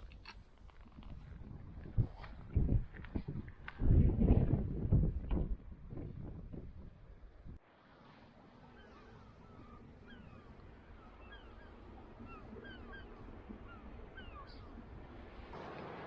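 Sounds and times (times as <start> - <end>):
birds chirping: 8.6 - 15.1.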